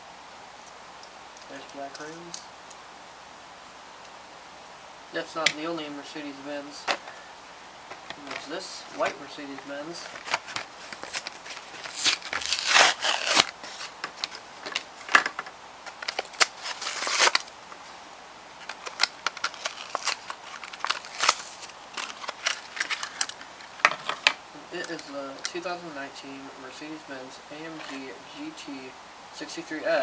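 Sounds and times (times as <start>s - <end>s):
plastic packaging crinkling: 7.9s - 17.9s, 18.6s - 25.5s.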